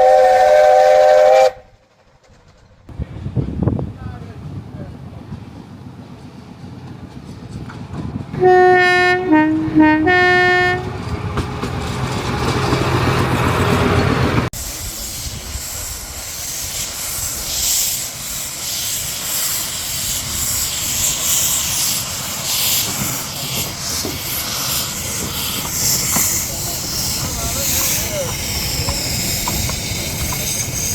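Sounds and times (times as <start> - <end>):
steam locomotive whistle: 0.0 - 1.8, 8.4 - 11.0
train clattering and hissing: 0.0 - 8.4, 10.2 - 30.9.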